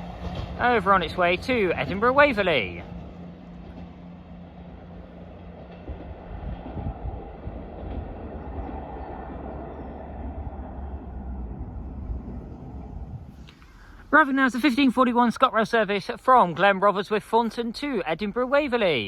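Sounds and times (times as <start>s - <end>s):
train low rumble: 0.0s - 19.0s.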